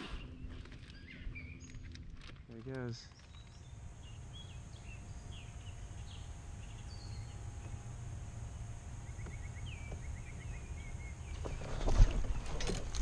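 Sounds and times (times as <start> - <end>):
bird chirps: 0.0 - 1.9, 3.0 - 12.6
trilled bird notes: 3.0 - 12.5.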